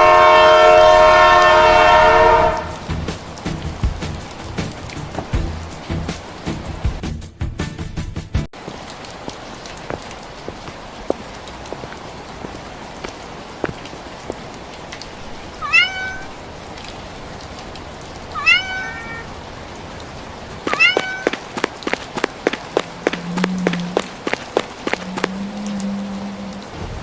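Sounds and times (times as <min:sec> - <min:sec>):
rain patter: 0:00.0 - 0:07.1, 0:08.5 - 0:27.0
cat meowing: 0:15.6 - 0:16.4, 0:18.3 - 0:19.4, 0:20.7 - 0:21.4.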